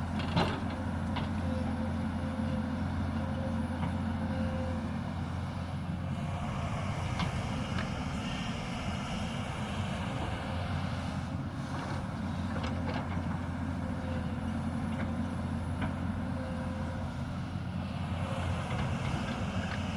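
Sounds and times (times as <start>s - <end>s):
excavator diesel engine running: 0.0s - 19.9s.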